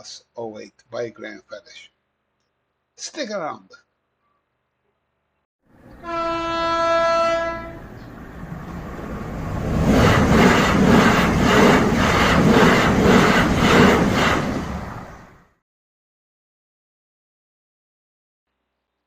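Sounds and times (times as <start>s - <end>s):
locomotive horn blast: 5.9s - 8.0s.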